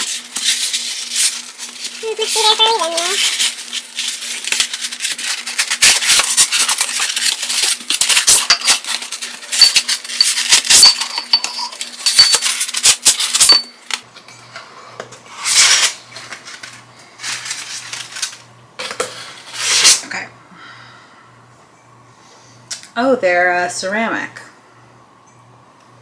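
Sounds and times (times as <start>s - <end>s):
packing material crackling: 0.0s - 10.7s.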